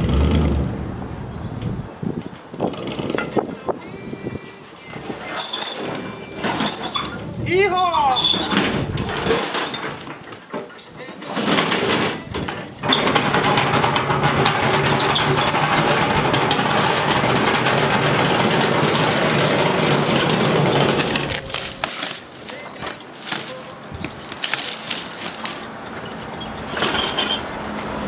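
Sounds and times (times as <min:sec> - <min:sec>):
mechanical rattling rumble: 0:08.2 - 0:10.0, 0:11.3 - 0:28.0.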